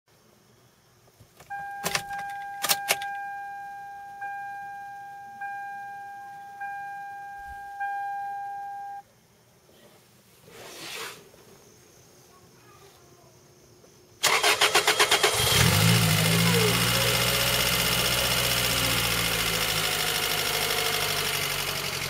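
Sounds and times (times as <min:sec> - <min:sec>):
car warning chime: 0:01.5 - 0:09.0.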